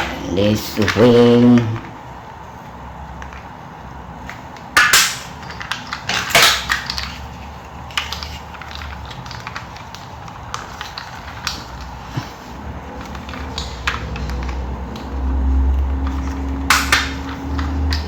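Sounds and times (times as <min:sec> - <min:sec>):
plastic toy clicks and knocks: 0:04.3 - 0:07.2, 0:16.0 - 0:18.0
packaging rustling: 0:05.3 - 0:18.0.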